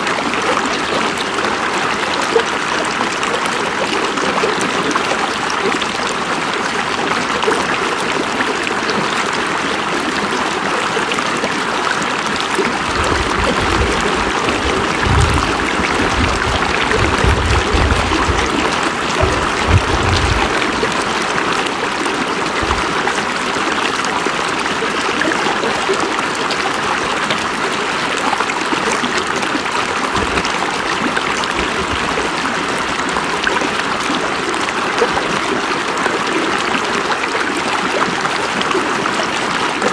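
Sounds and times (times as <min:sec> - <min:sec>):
river water rushing: 0:10.9 - 0:34.9
low rumble: 0:12.7 - 0:21.2.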